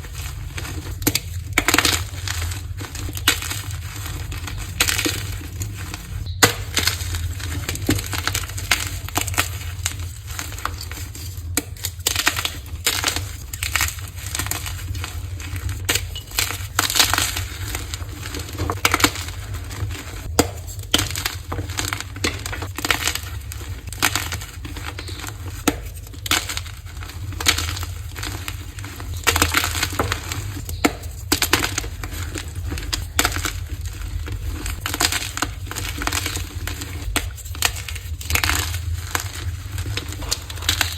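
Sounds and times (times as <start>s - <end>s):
chalk blocks crunching: 0.0s - 40.9s.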